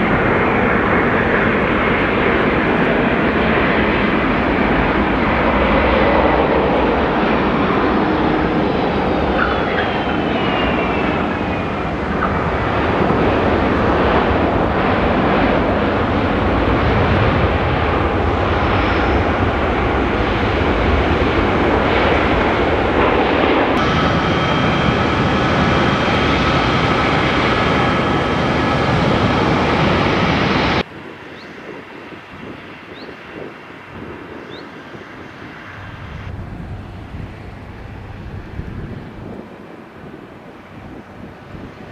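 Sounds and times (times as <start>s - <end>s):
jet engine noise: 0.0s - 41.9s
falling engine whine: 8.6s - 30.9s, 35.6s - 39.4s
engine with steady whining tones: 23.6s - 31.5s.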